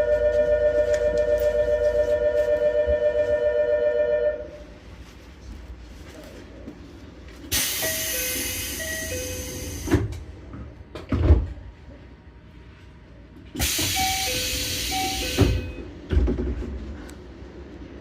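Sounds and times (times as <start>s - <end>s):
train door shutting thud: 7.5s - 10.2s, 13.6s - 16.8s.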